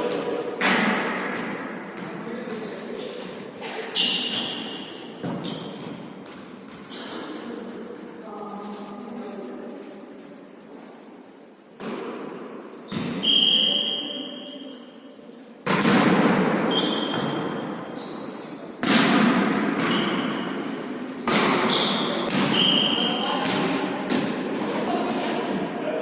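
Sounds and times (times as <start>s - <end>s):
shoe squeaks: 3.0s - 5.8s, 16.7s - 18.7s, 19.9s - 20.5s, 21.7s - 23.3s
volleyball thuds echoing: 18.8s - 20.6s, 21.2s - 24.5s.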